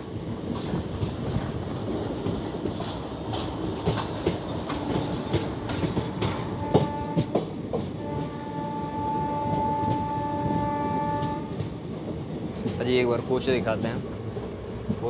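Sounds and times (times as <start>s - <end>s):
train wheels clacking: 0.0s - 14.1s
locomotive horn: 6.2s - 11.6s.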